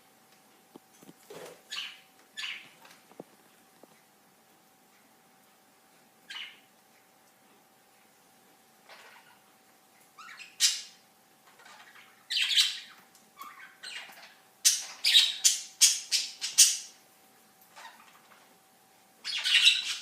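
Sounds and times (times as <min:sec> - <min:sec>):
budgerigars squawking: 0:11.6 - 0:16.9, 0:19.3 - 0:20.0.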